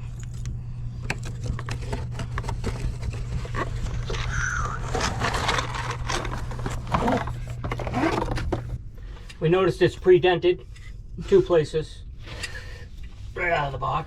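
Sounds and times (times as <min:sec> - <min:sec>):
parts scraping and clicking: 0:00.0 - 0:09.4
steady low hum: 0:00.0 - 0:14.0.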